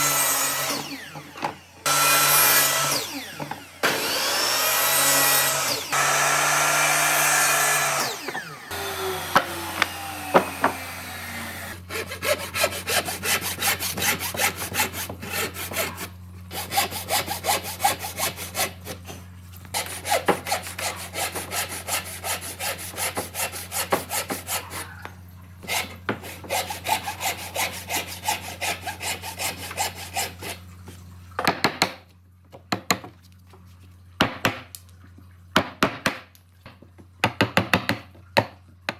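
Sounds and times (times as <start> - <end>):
power tool winding down: 0.0 - 11.9
hand tool rasping over wood: 0.0 - 30.6.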